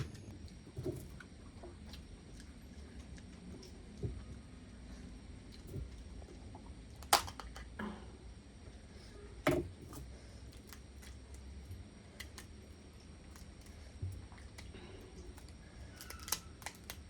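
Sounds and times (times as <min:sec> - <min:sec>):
crab shell cracking: 0:12.2 - 0:12.6, 0:14.4 - 0:17.0.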